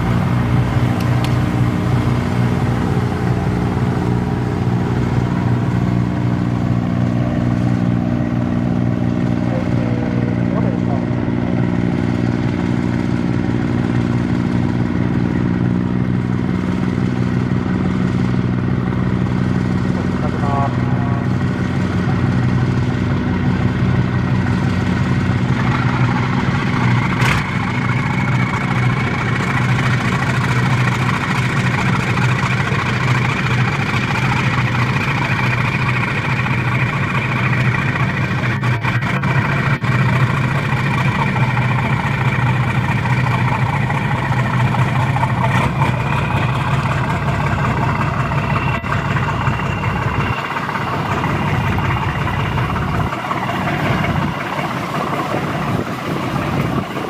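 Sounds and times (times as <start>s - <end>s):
boat diesel engines running: 0.0s - 57.0s
faint whine: 19.9s - 57.0s.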